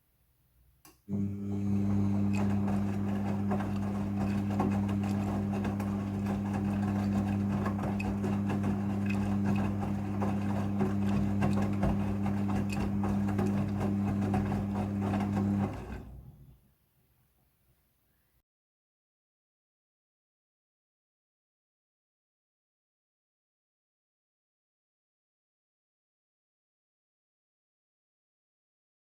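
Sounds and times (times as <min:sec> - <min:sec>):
washing machine electric hum: 0:01.1 - 0:16.6
water moving in washing machine: 0:01.1 - 0:16.6.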